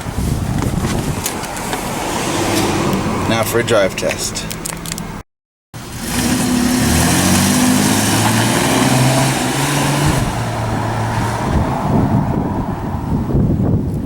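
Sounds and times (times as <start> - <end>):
road and wind noise: 0.0 - 5.2, 5.8 - 14.0
car engine accelerating: 5.8 - 13.4.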